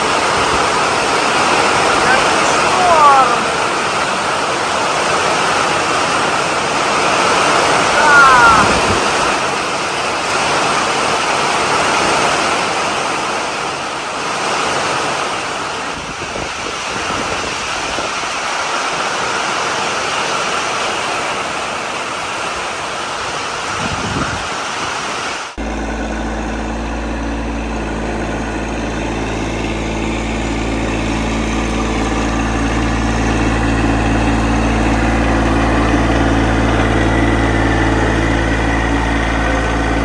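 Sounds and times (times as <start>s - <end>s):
band sawmill cutting log: 0.0s - 13.3s, 25.5s - 40.0s.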